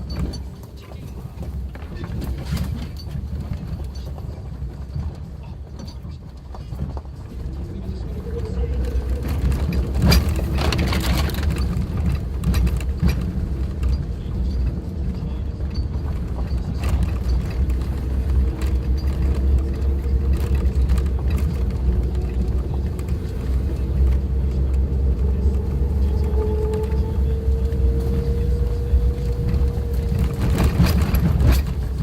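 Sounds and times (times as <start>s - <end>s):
car engine and road rumble: 0.0s - 32.0s
knocks and rattles of car body: 9.2s - 23.5s.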